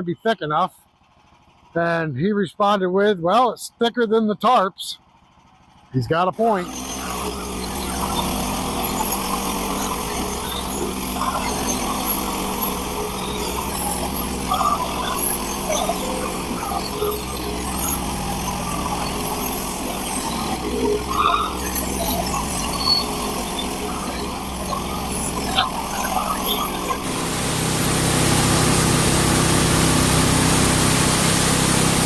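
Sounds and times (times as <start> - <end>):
sawmill engine running: 5.2 - 32.0
saw cutting boards: 6.5 - 32.0.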